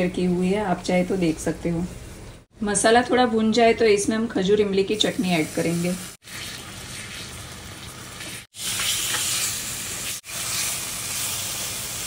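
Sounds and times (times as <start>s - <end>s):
food sizzling in hot oil: 4.8s - 12.0s.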